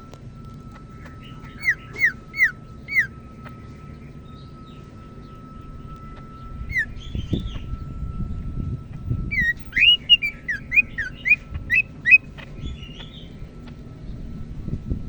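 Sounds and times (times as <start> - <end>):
soft bird chirps: 0.7 - 8.4, 9.3 - 13.8
bird whistled notes: 0.9 - 3.5, 5.7 - 8.4, 9.2 - 13.3.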